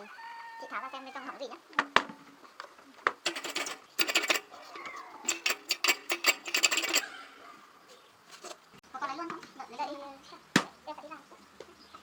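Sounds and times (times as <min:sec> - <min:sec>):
metal parts and tools clinking: 0:03.2 - 0:07.2, 0:08.3 - 0:08.6.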